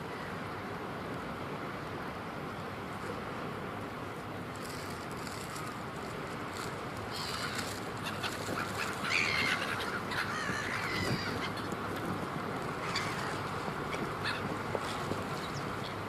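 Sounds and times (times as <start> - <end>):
steady rushing background noise: 0.0 - 16.0
flock of birds calling: 7.0 - 16.0.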